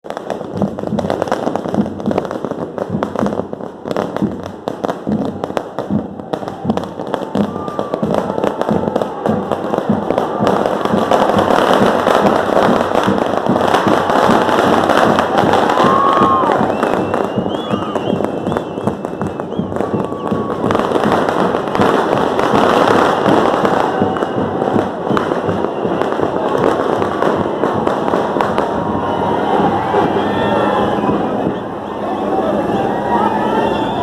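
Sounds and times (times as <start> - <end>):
firecrackers bursting: 0.0 - 34.0
short whistles: 16.7 - 20.3.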